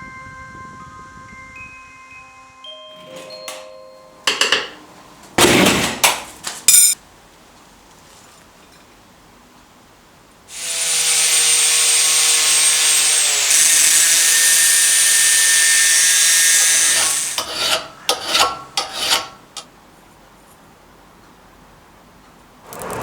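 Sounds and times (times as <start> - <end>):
power tool grinding metal: 10.5 - 19.6.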